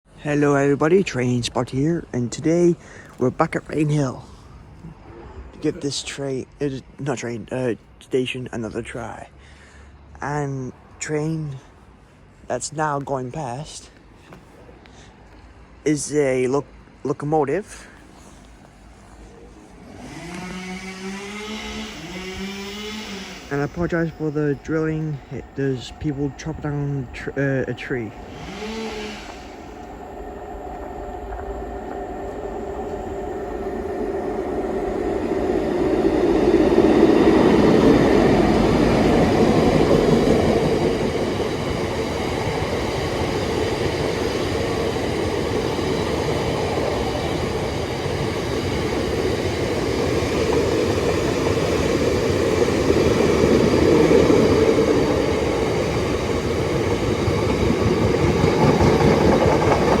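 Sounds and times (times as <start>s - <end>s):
train rumbling on rails: 17.6s - 60.0s.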